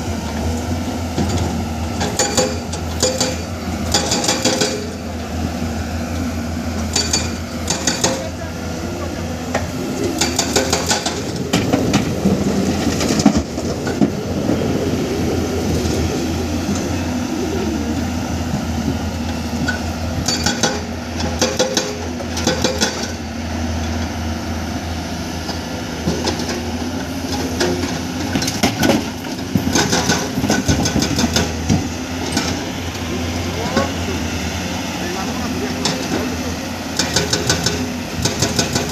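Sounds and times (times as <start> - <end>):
diesel machinery running: 0.0 - 38.9
metallic clanking and knocks: 1.2 - 5.0, 6.9 - 8.3, 19.6 - 23.2.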